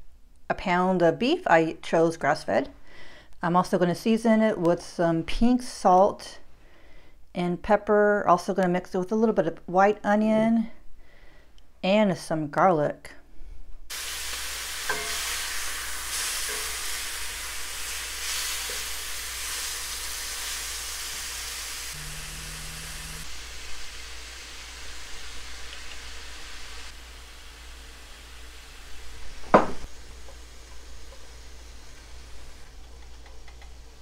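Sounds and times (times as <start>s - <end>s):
meat sizzling in skillet: 13.9s - 34.0s
sharp knock: 29.5s - 29.9s.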